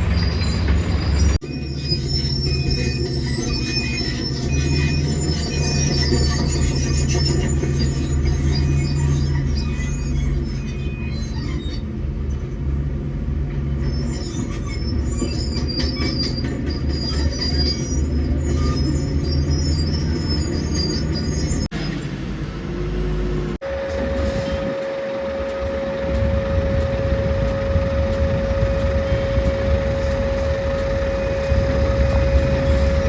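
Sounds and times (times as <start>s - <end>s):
excavator diesel engine under load: 0.0s - 1.7s, 19.0s - 33.0s
high-pitched metallic squeals: 0.0s - 12.6s, 13.6s - 22.0s, 23.6s - 33.0s
steady high tone: 23.6s - 33.0s.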